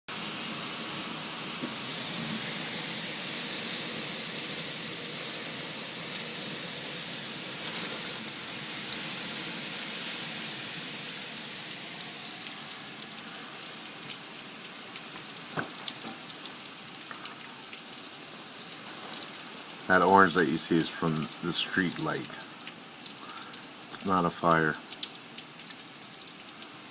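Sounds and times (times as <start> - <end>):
heavy rain pouring: 0.1 - 26.9
drips and taps: 15.0 - 17.8.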